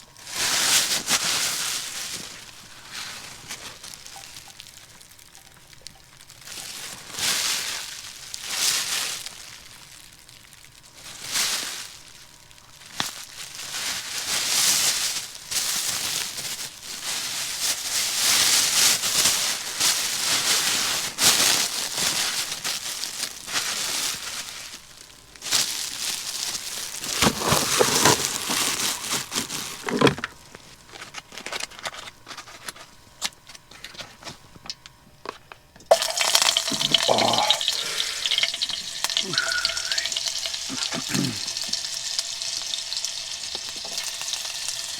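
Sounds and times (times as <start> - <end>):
handling sounds: 25.4 - 41.8
food sizzling in frying: 35.9 - 44.9
water running and splashing: 35.9 - 44.9.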